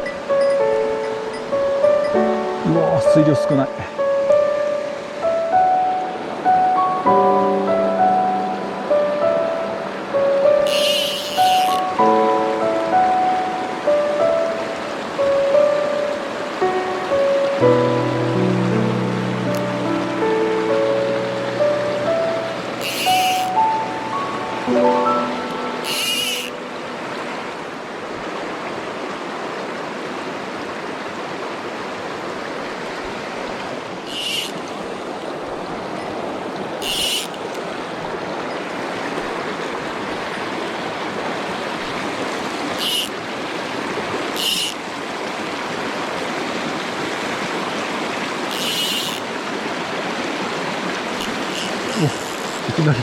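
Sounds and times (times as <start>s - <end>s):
stream rushing over rocks: 0.0s - 53.0s
high hissing sounds: 10.6s - 12.0s, 22.8s - 23.9s, 25.8s - 26.6s.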